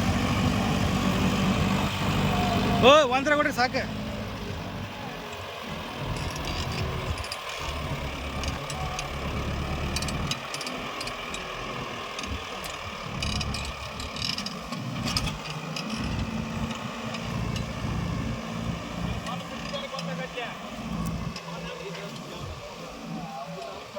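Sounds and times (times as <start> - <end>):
tractor diesel engine rumbling: 0.0 - 23.9
metallic clicks and rattles: 5.3 - 22.4.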